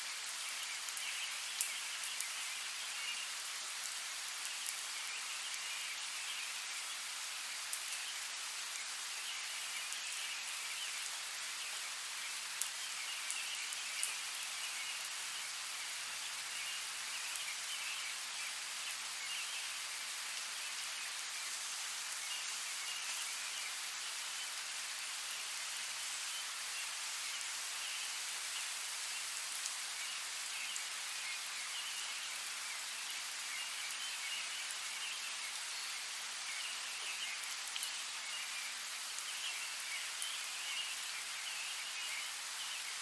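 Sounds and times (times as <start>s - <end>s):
steady rain falling: 0.0s - 43.0s
sharp raindrop ticks: 1.0s - 2.4s, 12.6s - 14.2s, 37.4s - 38.0s.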